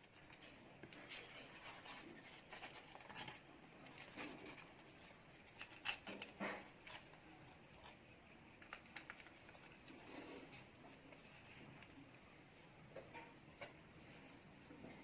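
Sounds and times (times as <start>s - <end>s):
scratching and rustling: 0.0s - 15.0s.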